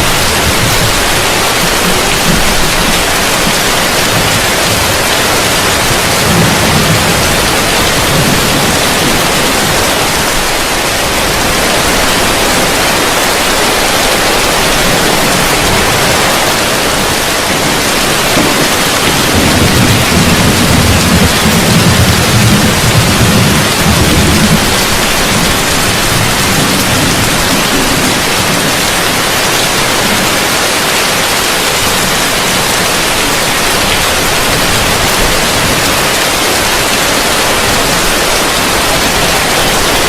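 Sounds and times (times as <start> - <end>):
low thunder rumble: 0.0 - 30.7
heavy rain on a roof: 0.0 - 40.0.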